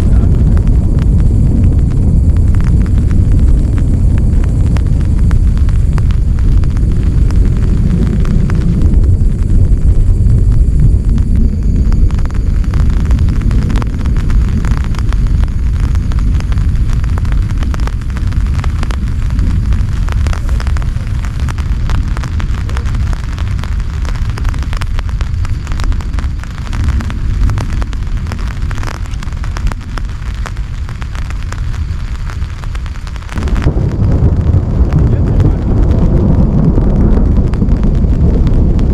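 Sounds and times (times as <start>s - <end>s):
deep steady rumble: 0.0s - 38.9s
heavy rain drops pattering: 0.0s - 38.9s.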